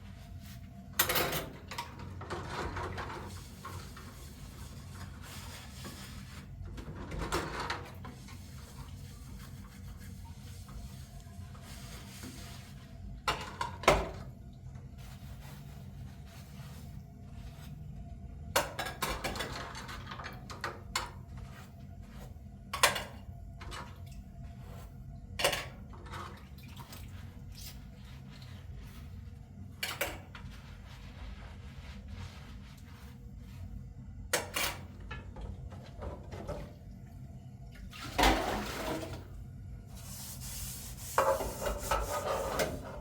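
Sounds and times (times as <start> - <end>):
pots and utensils clattering: 18.6 - 21.2, 25.4 - 26.3.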